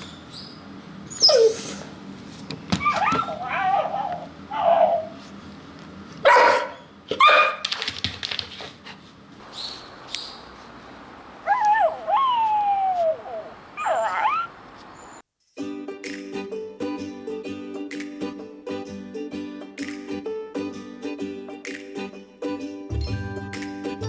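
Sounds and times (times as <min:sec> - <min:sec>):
dog whimpering and whining: 0:01.1 - 0:01.9, 0:02.8 - 0:05.2, 0:11.4 - 0:15.2
harsh dog yaps: 0:01.1 - 0:01.9, 0:02.7 - 0:05.2, 0:06.2 - 0:07.8, 0:11.1 - 0:15.2.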